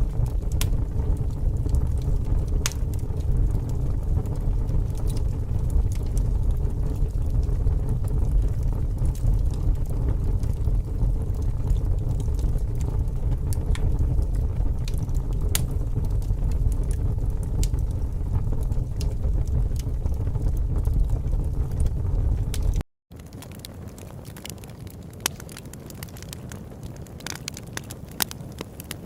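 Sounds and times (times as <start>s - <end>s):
fire crackling: 0.0s - 29.0s
sharp pops and snaps: 22.5s - 26.6s.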